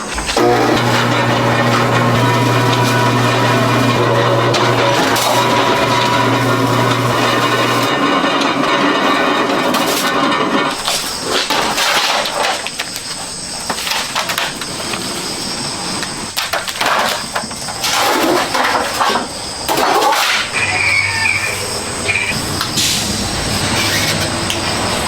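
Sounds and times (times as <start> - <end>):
metal scraping and knocking on metal: 0.0 - 12.6.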